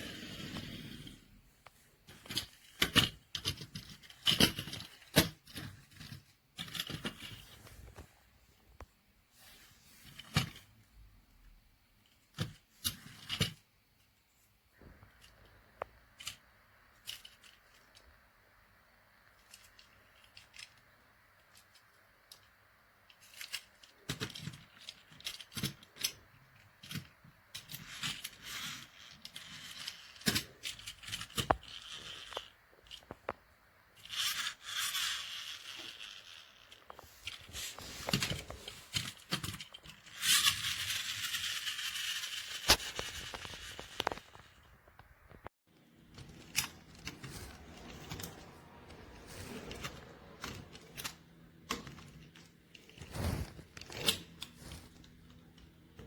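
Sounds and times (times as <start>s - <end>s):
objects clicking and scraping: 23.1s - 56.0s.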